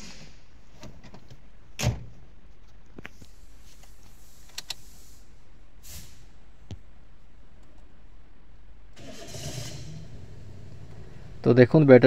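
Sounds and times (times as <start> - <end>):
brief hiss: 3.2 - 6.4.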